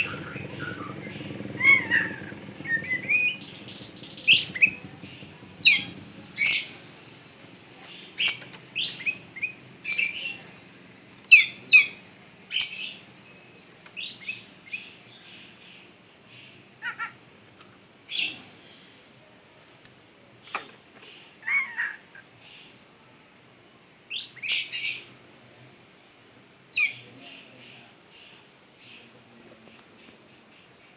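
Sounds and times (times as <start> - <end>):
pet bird chirping: 0.0 - 6.8, 7.9 - 10.5, 11.3 - 13.0, 26.7 - 29.1.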